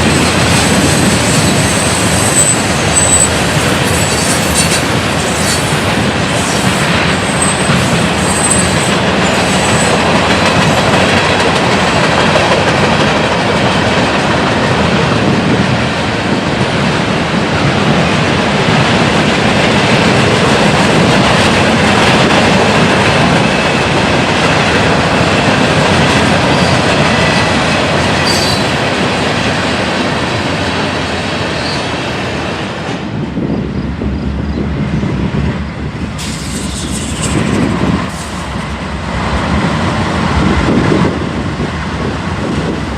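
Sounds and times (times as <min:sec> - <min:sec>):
train cars rumbling on rails: 0:00.0 - 0:42.9
high wheel squeal: 0:00.8 - 0:05.8, 0:06.4 - 0:10.0, 0:26.5 - 0:26.9, 0:28.2 - 0:28.7, 0:36.2 - 0:38.6.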